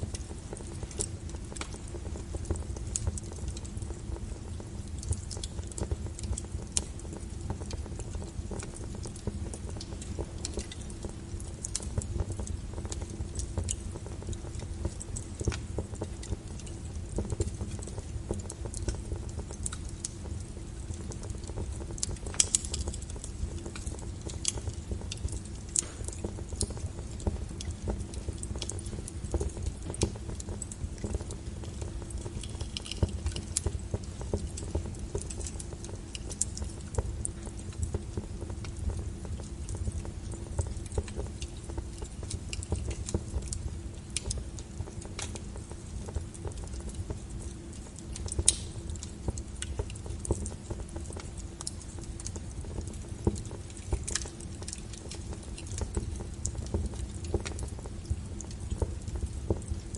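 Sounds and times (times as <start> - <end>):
logs crackling and popping: 0.0 - 59.9
low rumble of flames: 0.0 - 59.9.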